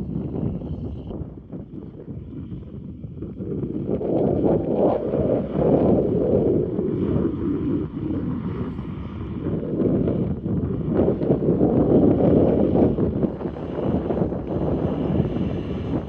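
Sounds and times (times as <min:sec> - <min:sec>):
gusty wind buffeting microphone: 0:00.0 - 0:16.0.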